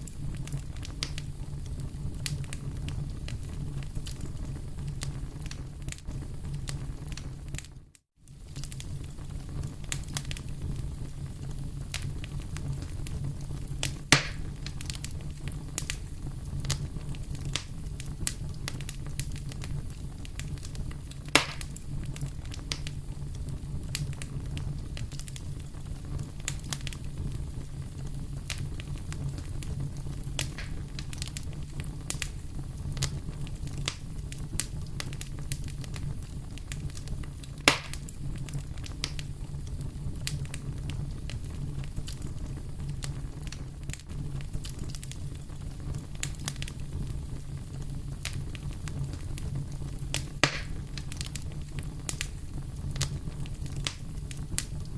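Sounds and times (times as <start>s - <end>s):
fire crackling and popping: 0.0s - 54.9s
fire rumbling in fireplace: 0.0s - 54.9s.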